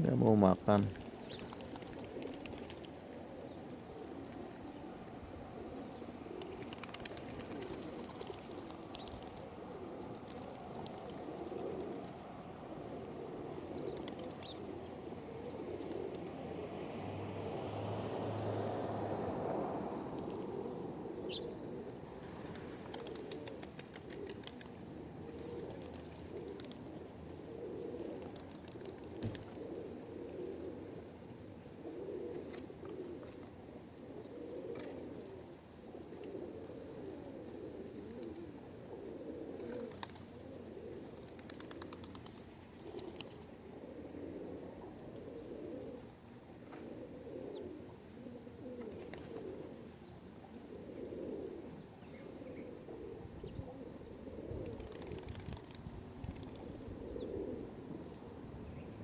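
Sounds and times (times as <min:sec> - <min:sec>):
pigeons cooing: 0:00.0 - 0:59.0
wings flapping: 0:00.7 - 0:03.0, 0:06.3 - 0:12.2, 0:13.8 - 0:14.7, 0:15.8 - 0:16.4, 0:22.2 - 0:24.8, 0:25.4 - 0:26.9, 0:28.1 - 0:29.8, 0:39.6 - 0:40.3, 0:41.1 - 0:43.4, 0:48.9 - 0:49.5, 0:54.6 - 0:56.8.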